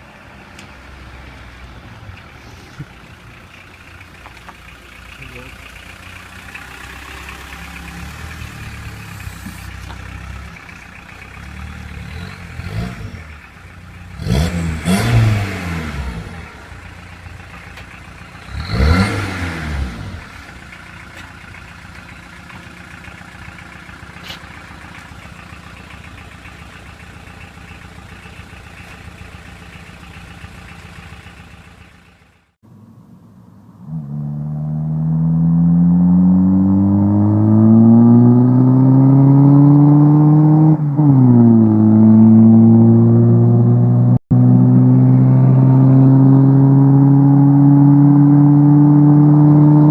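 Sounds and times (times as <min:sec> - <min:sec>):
car engine idling: 0:00.0 - 0:34.4
engine revving: 0:02.4 - 0:49.9.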